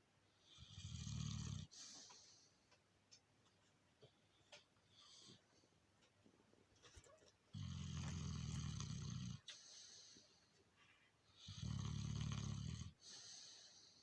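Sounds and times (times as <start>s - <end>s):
dog snoring: 0.4s - 2.0s, 7.5s - 9.5s, 11.4s - 13.7s.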